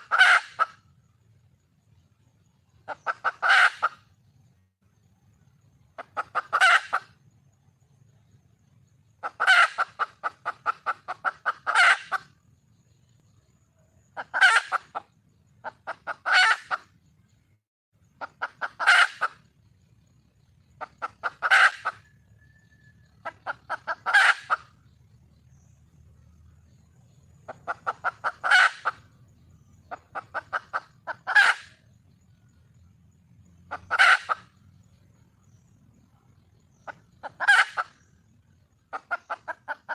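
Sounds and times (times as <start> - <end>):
hen clucking: 0.0 - 0.8, 2.8 - 4.1, 6.0 - 7.1, 9.2 - 12.4, 14.2 - 16.9, 18.2 - 19.5, 20.8 - 22.1, 23.0 - 24.9, 27.4 - 29.1, 29.8 - 31.8, 33.7 - 34.6, 36.7 - 38.1, 38.9 - 39.9.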